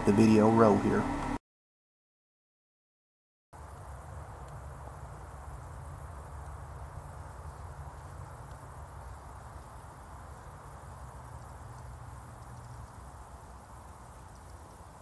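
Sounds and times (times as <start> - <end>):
high insect drone: 3.6 - 15.0.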